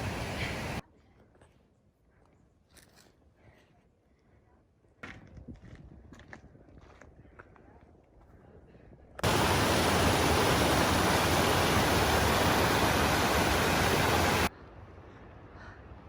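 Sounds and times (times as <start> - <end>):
waterfall rushing: 0.0 - 0.8, 9.2 - 14.5.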